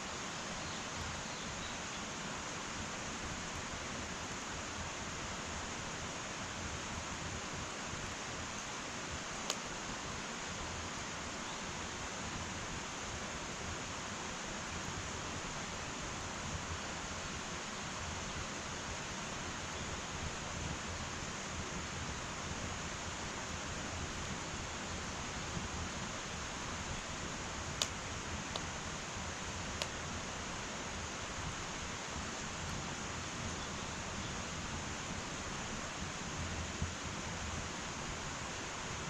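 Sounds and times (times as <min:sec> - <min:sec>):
wood fire hissing: 0:00.0 - 0:39.0
fire crackling pops: 0:09.4 - 0:09.7.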